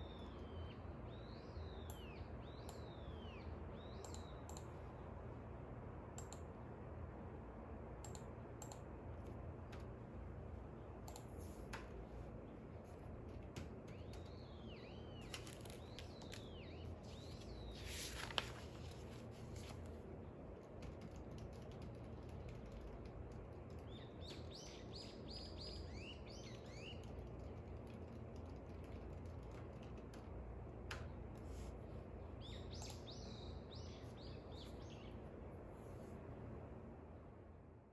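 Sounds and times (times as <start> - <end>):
faint birdsong chirps: 0.0 - 5.2, 10.7 - 19.6, 23.5 - 28.9, 31.1 - 35.6.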